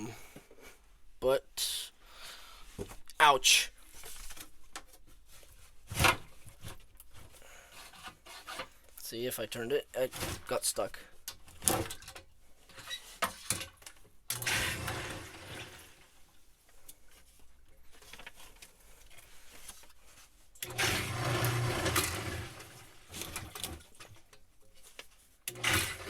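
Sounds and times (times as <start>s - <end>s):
sump pump motor humming: 20.6s - 22.7s.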